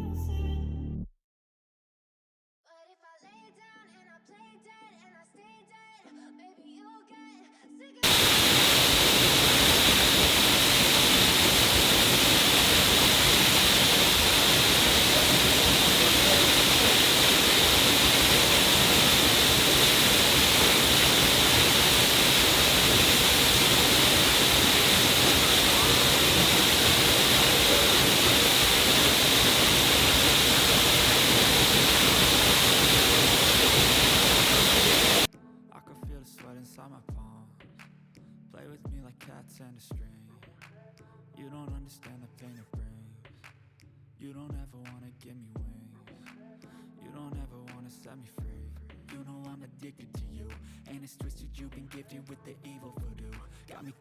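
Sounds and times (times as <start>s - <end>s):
loud static hiss: 8.0s - 35.3s.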